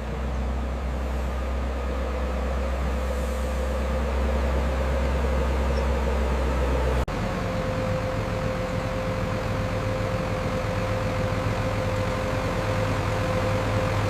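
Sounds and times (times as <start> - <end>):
diesel machinery engine drone: 0.0 - 14.0.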